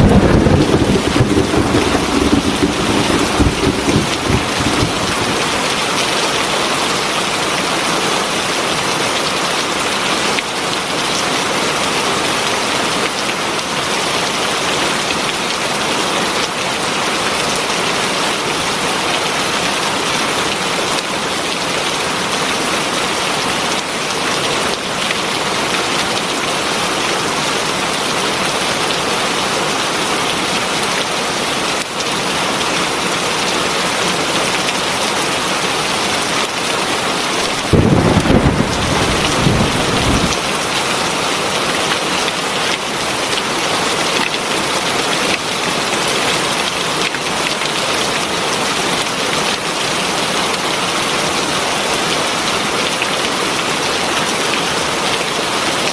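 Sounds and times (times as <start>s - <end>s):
heavy rain falling: 0.0s - 55.9s.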